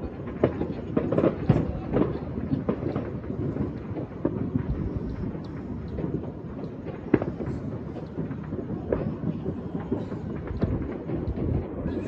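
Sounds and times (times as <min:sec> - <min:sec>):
distant fireworks popping: 0:00.0 - 0:12.0.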